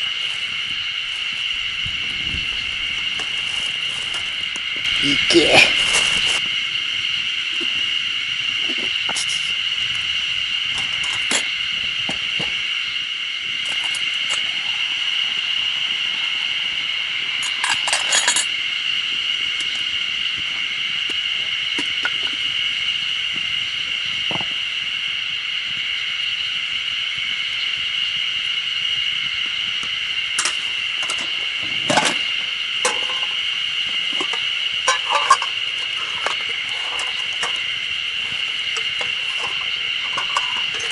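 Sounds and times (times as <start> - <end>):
high-pitched drone: 0.0 - 40.9.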